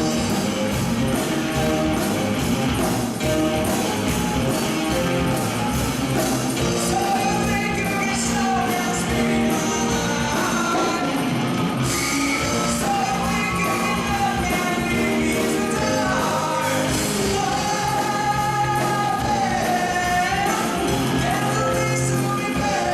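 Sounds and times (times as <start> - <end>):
live band music: 0.0 - 22.9
person singing: 6.6 - 22.9.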